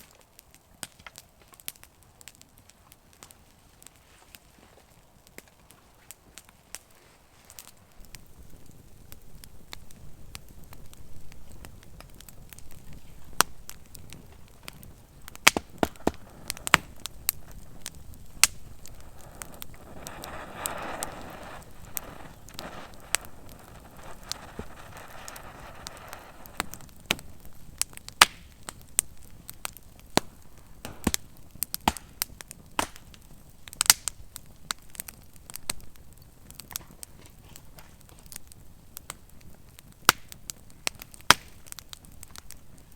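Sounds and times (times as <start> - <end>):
campfire crackling and popping: 0.0 - 42.9
soft rushing hiss: 3.4 - 31.6.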